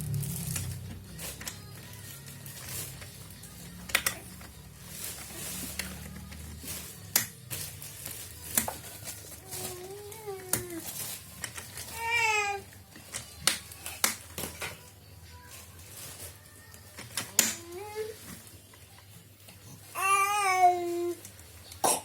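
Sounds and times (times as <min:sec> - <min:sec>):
baby cooing and squealing: 0:11.9 - 0:12.6, 0:19.9 - 0:21.2.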